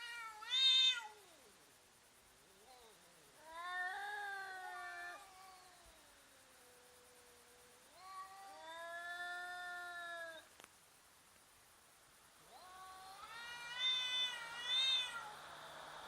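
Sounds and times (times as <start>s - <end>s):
cats yowling: 0.0s - 1.4s, 2.6s - 10.5s, 12.4s - 15.7s.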